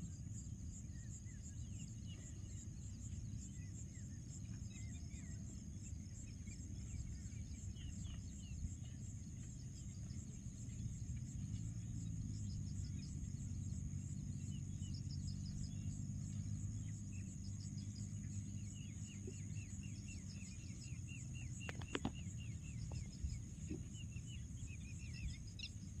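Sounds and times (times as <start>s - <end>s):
insects chirring: 0.0s - 26.0s
bird chirps: 0.8s - 26.0s
sharp clicks: 21.6s - 22.2s.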